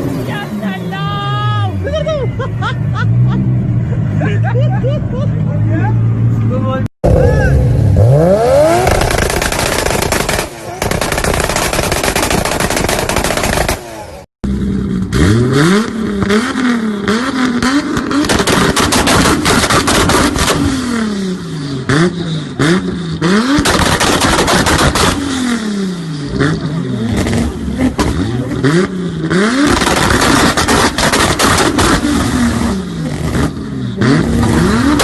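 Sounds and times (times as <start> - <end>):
engine revving: 5.7 - 35.0
exhaust pops and crackles: 8.7 - 14.0, 17.5 - 20.7, 23.5 - 25.3, 26.5 - 28.6, 29.5 - 33.6.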